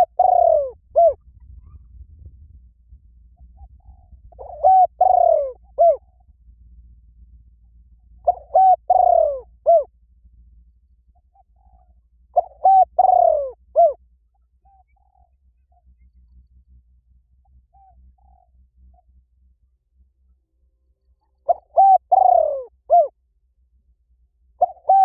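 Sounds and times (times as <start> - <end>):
dove cooing: 0.0 - 1.9, 3.4 - 6.2, 8.2 - 9.9, 11.2 - 14.0, 14.6 - 15.9, 17.6 - 18.6, 21.2 - 23.2, 24.6 - 25.0.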